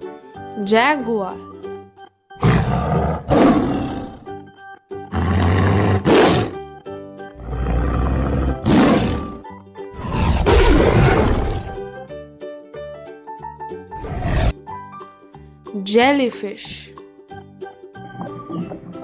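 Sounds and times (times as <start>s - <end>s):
light background music: 0.0s - 19.0s
jaguar roaring: 2.4s - 4.4s, 5.1s - 6.6s, 7.4s - 9.4s, 10.0s - 11.8s, 14.0s - 14.6s, 18.2s - 19.0s.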